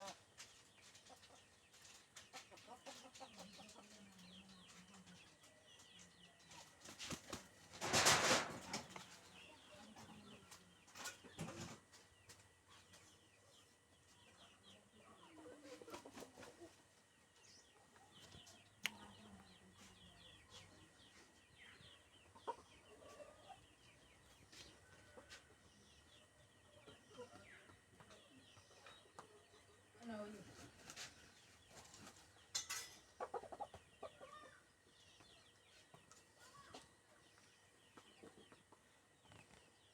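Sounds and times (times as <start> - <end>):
birds chirping and clucking: 0.0 - 39.9
wings fluttering: 6.6 - 9.1.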